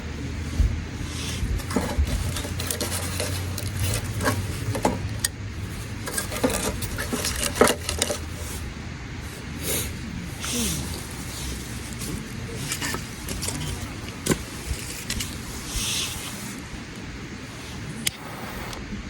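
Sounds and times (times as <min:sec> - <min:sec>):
low steady rumble: 0:00.0 - 0:19.0
hard objects clinking and scraping: 0:01.1 - 0:08.6, 0:10.4 - 0:16.2.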